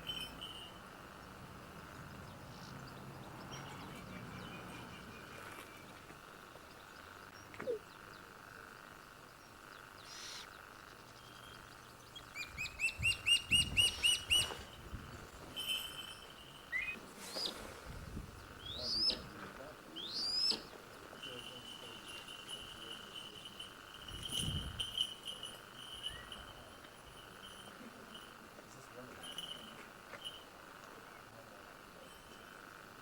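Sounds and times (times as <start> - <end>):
birds calling: 0.0 - 15.0, 15.8 - 17.7, 18.4 - 23.6
faint steady hum: 0.0 - 33.0.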